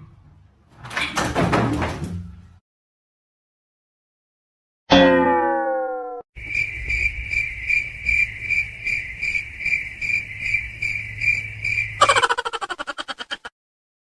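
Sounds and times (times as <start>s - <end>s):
cricket chirping: 6.4s - 13.3s.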